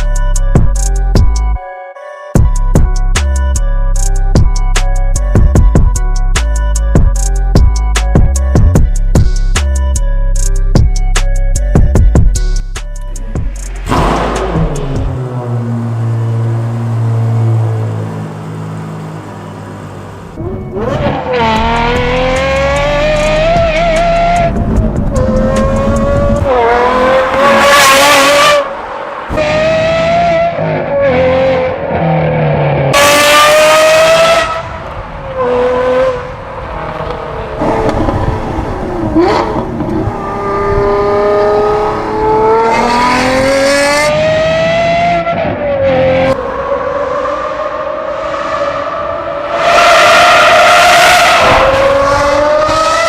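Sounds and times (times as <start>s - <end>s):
car engine accelerating hard: 13.6s - 53.0s.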